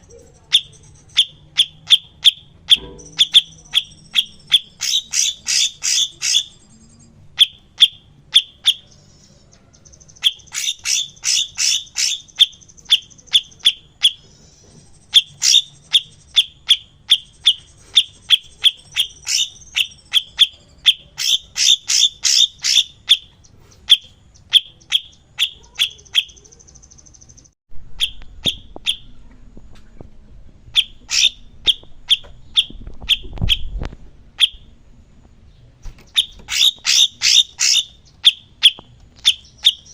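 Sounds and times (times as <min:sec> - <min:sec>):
bird chip notes and trills: 0:00.0 - 0:29.2, 0:30.7 - 0:33.8, 0:35.6 - 0:39.9
low rumble: 0:27.3 - 0:35.9.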